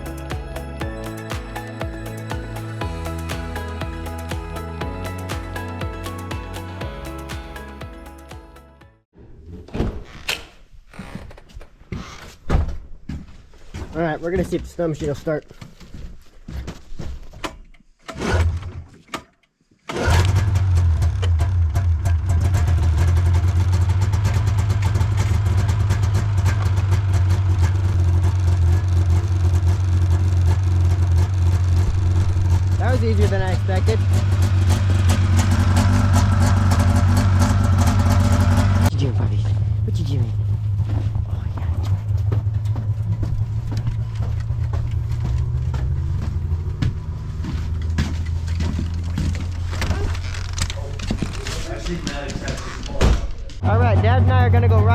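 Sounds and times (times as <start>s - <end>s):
snowmobile engine idling: 22.0s - 45.3s.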